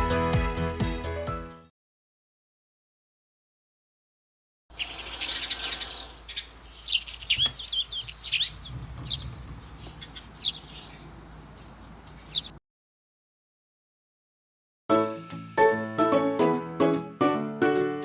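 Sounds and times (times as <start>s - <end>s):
birds chirping: 4.7s - 12.6s.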